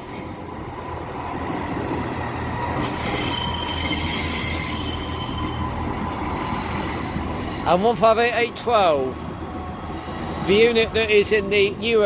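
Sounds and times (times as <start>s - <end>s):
metallic wheel and brake squeal: 0.0s - 0.5s, 2.8s - 7.6s
train engine hum: 0.0s - 12.0s.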